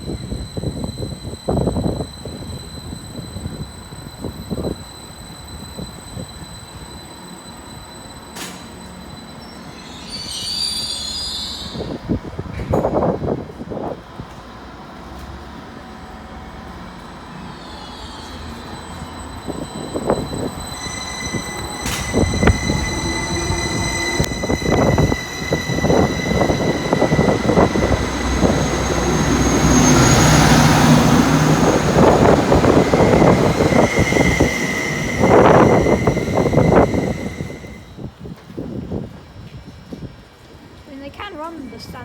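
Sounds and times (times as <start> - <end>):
high-pitched wheel squeal: 0.0 - 12.2, 17.2 - 38.1.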